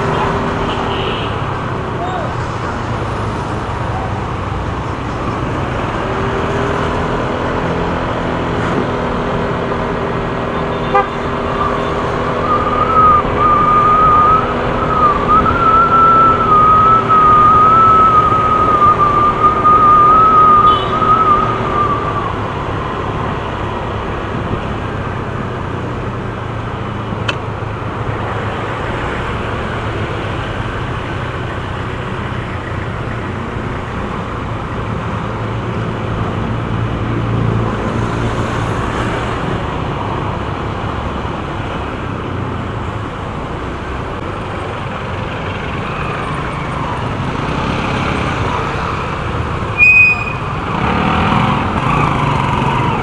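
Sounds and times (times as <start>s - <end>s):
road and wind noise: 0.0s - 53.0s
motorcycle engine drone: 44.2s - 53.0s.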